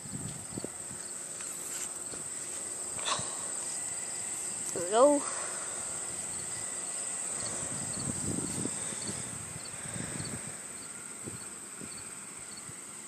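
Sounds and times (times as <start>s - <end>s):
insects chirring drone: 0.0s - 13.0s
rustling and scuffs: 1.0s - 2.8s
cricket double chirps: 6.0s - 12.7s.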